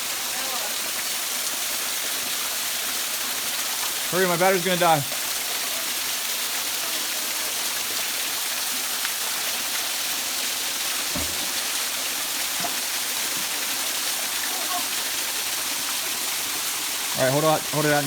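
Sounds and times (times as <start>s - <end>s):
waterfall rushing: 0.0s - 18.0s
faint low knock: 11.1s - 11.6s.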